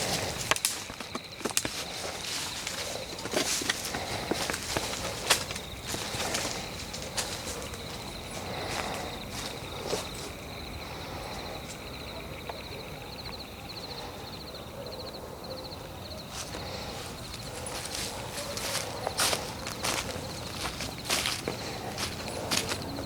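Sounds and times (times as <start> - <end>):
footsteps crunching on leaves: 0.0 - 10.4, 16.3 - 23.0
night insects chirping: 0.0 - 23.0.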